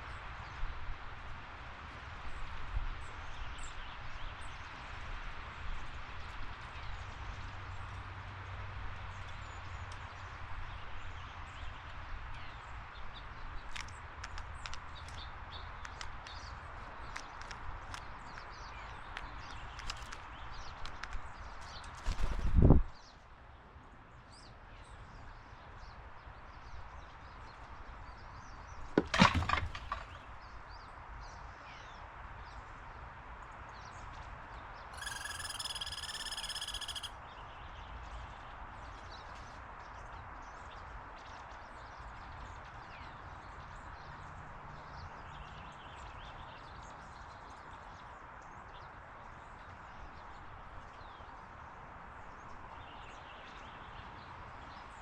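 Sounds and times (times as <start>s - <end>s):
small birds chirping: 5.8s - 55.0s
wooden clatter: 29.0s - 30.3s.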